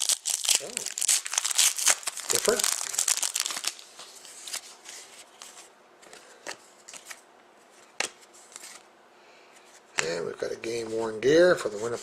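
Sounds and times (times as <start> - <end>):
trading cards rustling: 0.0 - 7.2.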